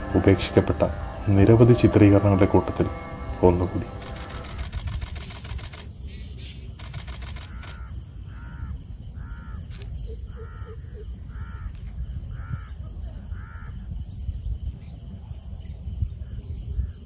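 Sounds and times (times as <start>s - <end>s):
bird calling: 0.0s - 6.6s, 7.2s - 13.8s.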